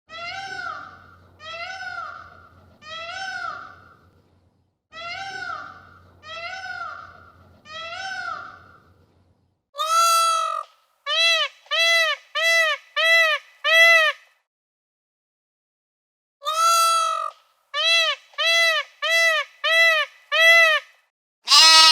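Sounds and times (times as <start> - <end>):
animal calls: 21.5 - 21.9.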